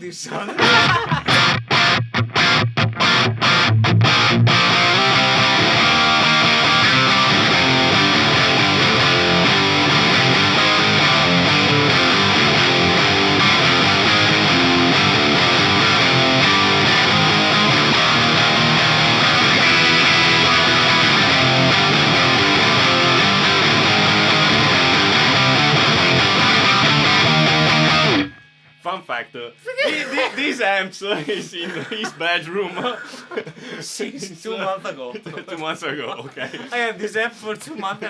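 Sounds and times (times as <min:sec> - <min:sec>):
distorted electric guitar riffing: 0:00.6 - 0:28.7.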